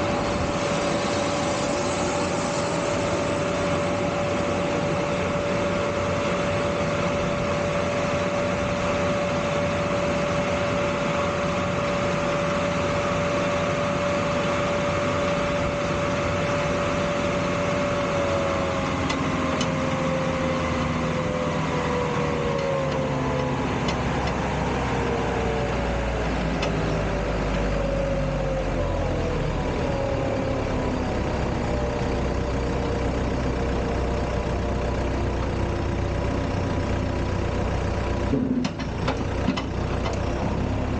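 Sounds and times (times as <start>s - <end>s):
jet engine whine and rumble: 0.0s - 32.5s.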